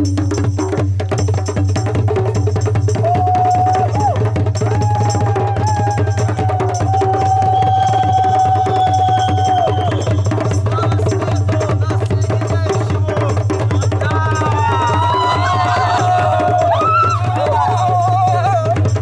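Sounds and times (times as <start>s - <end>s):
hand drums beating: 0.0s - 19.0s
rising calls: 4.6s - 10.5s.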